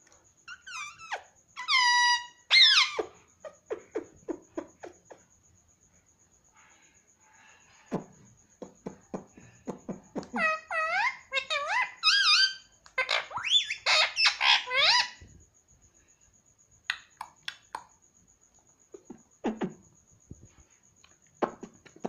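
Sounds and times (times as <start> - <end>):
parakeet squealing: 0.5 - 4.9, 10.2 - 15.3
parakeet chirps and clicks: 10.2 - 15.0.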